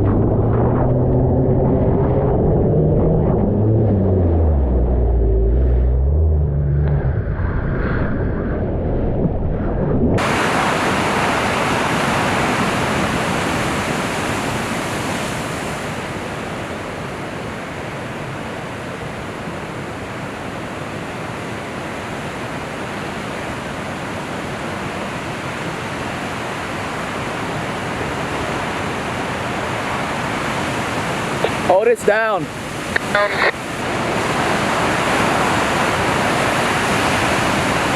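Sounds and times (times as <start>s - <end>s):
low rumble: 0.0s - 10.3s
wind buffeting microphone: 0.0s - 20.6s
surf roar: 0.0s - 37.9s.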